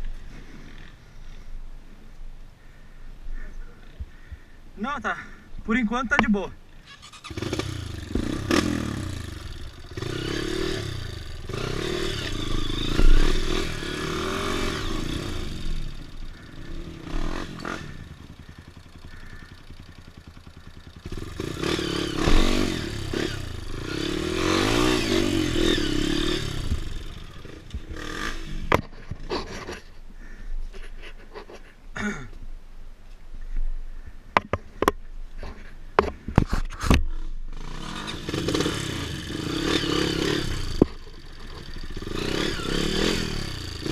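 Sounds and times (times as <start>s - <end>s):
dirt bike engine revving: 5.7s - 29.8s, 37.5s - 43.9s.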